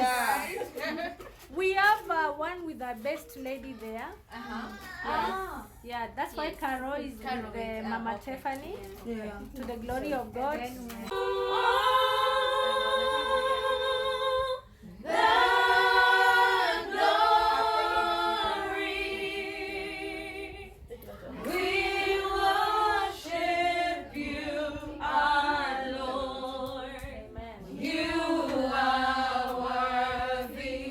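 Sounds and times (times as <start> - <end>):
group singing in harmony: 11.1 - 30.9.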